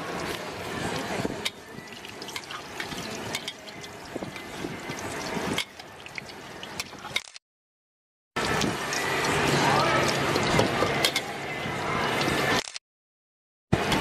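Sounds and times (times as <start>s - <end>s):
omelet sizzling and crackling in oil: 0.0s - 7.2s, 8.4s - 10.7s.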